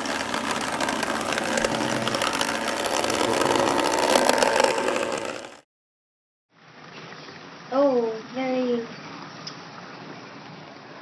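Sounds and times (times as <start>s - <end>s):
model train motor whirring: 0.0s - 5.6s
wheels rattling over track: 0.0s - 5.6s.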